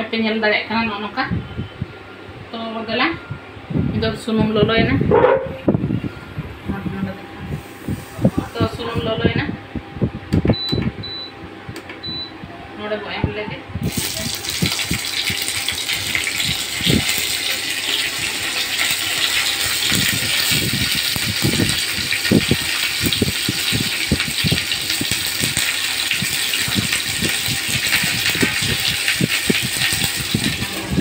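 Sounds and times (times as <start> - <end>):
vegetables sizzling in oil: 13.8 - 31.0.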